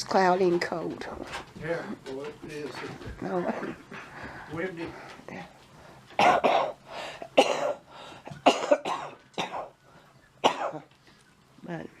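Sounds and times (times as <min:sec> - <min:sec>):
person coughing: 0:06.2 - 0:06.8, 0:07.4 - 0:07.8, 0:08.4 - 0:09.7, 0:10.4 - 0:10.9.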